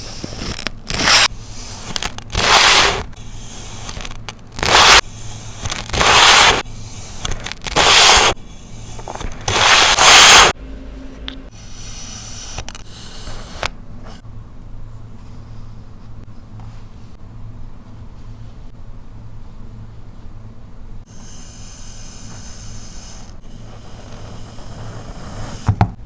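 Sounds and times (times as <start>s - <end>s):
sand being cut through: 0.0s - 10.6s.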